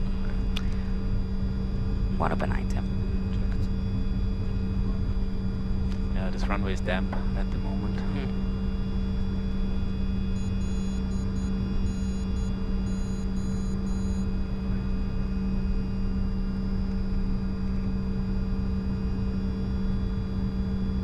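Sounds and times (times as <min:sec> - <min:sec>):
jet engines idling: 0:00.0 - 0:15.8.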